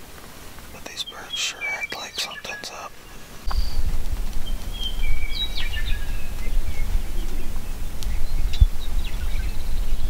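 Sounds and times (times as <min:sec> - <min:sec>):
small birds chirping: 0:00.7 - 0:10.0
steady low rumble: 0:03.3 - 0:10.0.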